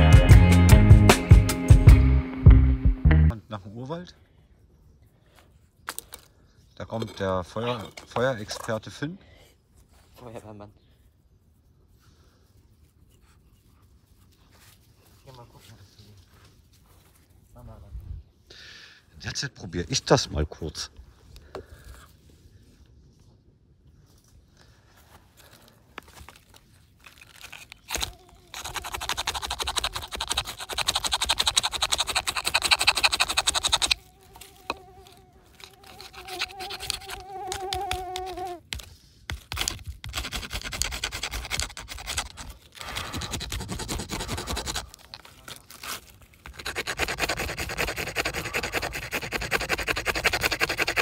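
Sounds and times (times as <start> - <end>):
wooden drill rubbing on board: 27.4 - 45.0, 45.8 - 51.0.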